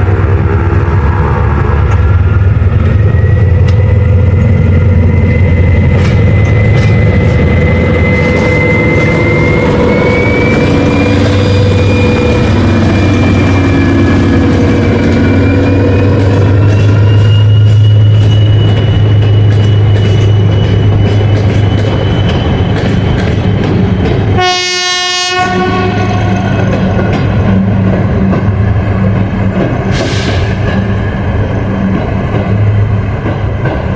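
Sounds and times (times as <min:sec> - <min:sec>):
train rumbling past: 0:00.0 - 0:33.9
train horn blast: 0:24.3 - 0:26.8.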